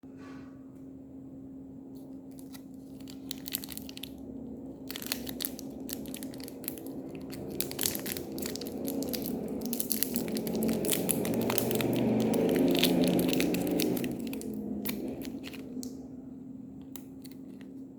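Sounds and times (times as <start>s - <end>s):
wrapper crinkling and tearing: 2.3s - 16.0s.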